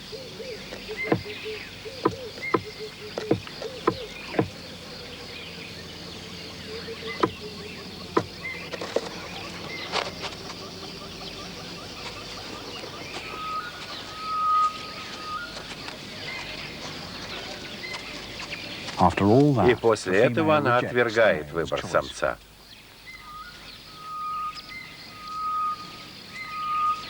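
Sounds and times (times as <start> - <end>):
insects: 0.0 - 27.0
sharp knocks: 2.0 - 4.6, 7.2 - 7.4.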